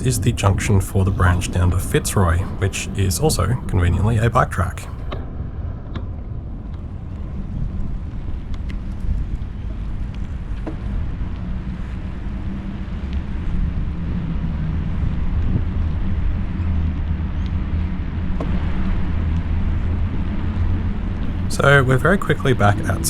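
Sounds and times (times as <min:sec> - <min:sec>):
road traffic rumble: 0:00.0 - 0:05.2, 0:21.3 - 0:23.0.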